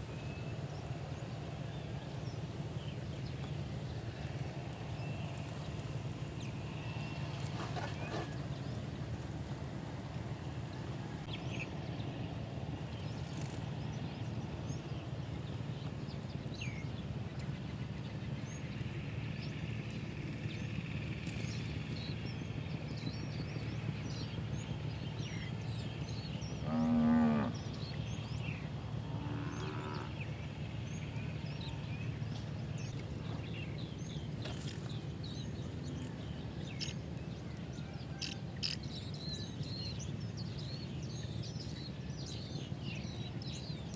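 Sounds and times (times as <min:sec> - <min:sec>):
cow mooing: 0:26.6 - 0:27.6, 0:29.1 - 0:30.2.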